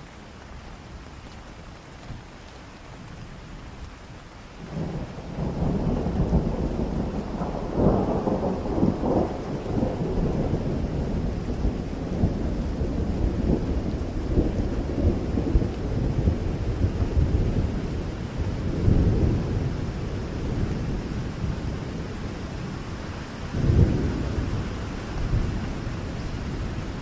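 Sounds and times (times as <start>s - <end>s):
rain falling: 0.0s - 27.0s
rolling thunder rumble: 4.6s - 27.0s.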